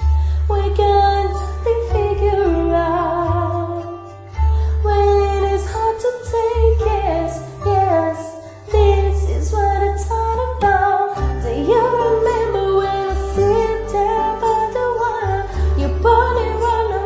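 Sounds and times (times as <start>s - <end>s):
person singing: 4.8s - 17.0s.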